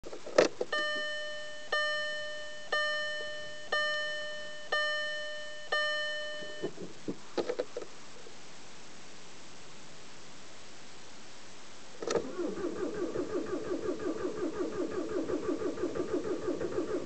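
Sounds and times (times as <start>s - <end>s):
car warning chime: 0.7s - 6.8s.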